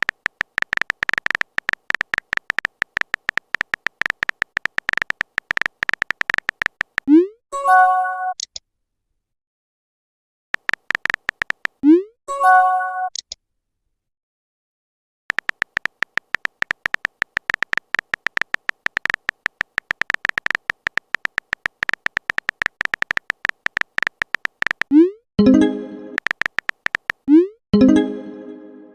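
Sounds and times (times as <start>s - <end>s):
phone keyboard typing clicks: 0.0s - 7.2s, 10.6s - 11.9s, 15.3s - 25.1s, 26.1s - 27.5s
message chime: 25.4s - 26.2s, 27.8s - 28.9s.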